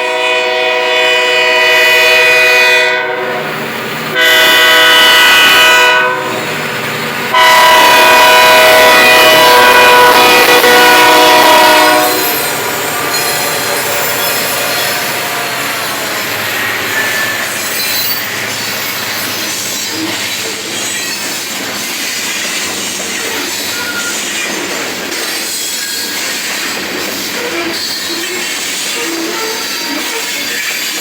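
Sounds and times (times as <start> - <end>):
locomotive horn: 0.0 - 6.5, 7.3 - 17.6
freight cars rumbling on rails: 3.2 - 31.0
faint wheel squeals: 12.2 - 21.4, 23.1 - 24.7.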